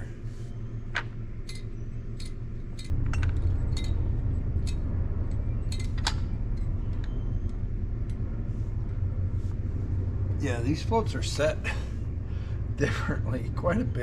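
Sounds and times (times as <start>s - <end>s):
steady low rumble: 0.0s - 14.0s
small metal parts clinking: 0.9s - 7.6s.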